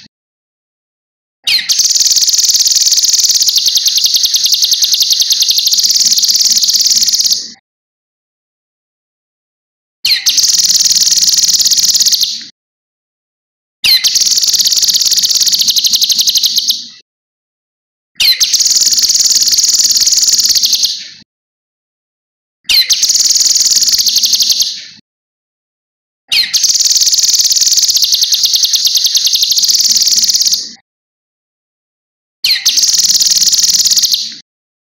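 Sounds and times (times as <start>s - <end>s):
bird singing rapid trills: 1.5s - 7.4s, 10.1s - 12.3s, 13.9s - 16.8s, 18.2s - 21.0s, 22.7s - 24.8s, 26.3s - 30.7s, 32.5s - 34.3s.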